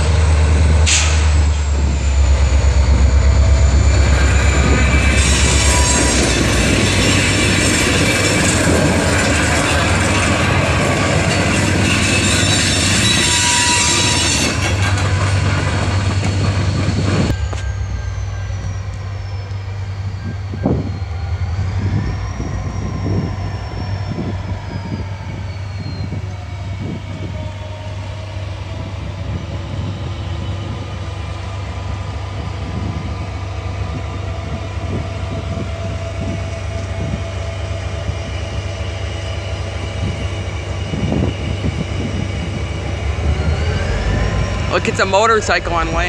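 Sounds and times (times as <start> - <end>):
freight cars rolling: 0.0 - 24.9
diesel locomotive engine hum: 0.0 - 46.0
high squealing tones: 1.2 - 27.6, 29.8 - 46.0.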